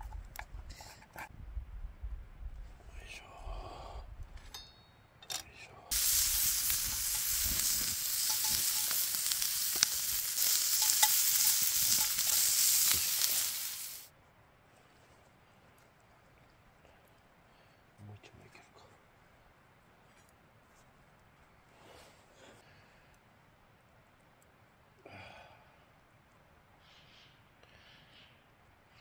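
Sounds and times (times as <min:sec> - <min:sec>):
food sizzling in a frying pan: 0:05.9 - 0:14.1.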